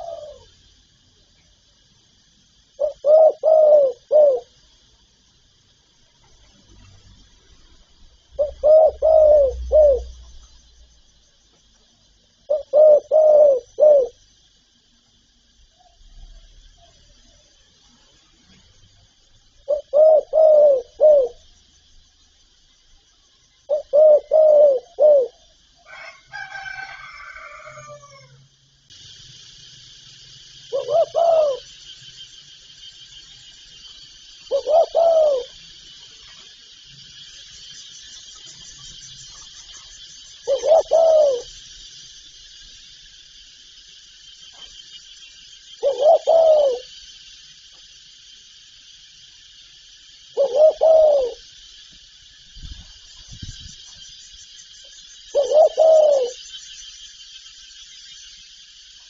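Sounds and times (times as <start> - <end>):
higher wavering bird call: 0.0 - 0.5, 2.8 - 4.5, 8.3 - 10.3, 12.5 - 14.2, 19.7 - 21.4, 23.7 - 28.4, 30.7 - 32.0, 34.4 - 35.7, 38.1 - 41.6, 45.2 - 46.9, 50.3 - 51.5, 55.3 - 56.6
doves cooing: 0.0 - 0.6, 2.8 - 4.6, 7.5 - 10.4, 12.5 - 14.2, 19.6 - 21.5, 23.7 - 26.2, 30.6 - 31.9, 34.2 - 37.2, 38.3 - 42.0, 45.8 - 47.0, 50.3 - 51.6, 55.3 - 56.5
steady high hiss: 0.0 - 59.0.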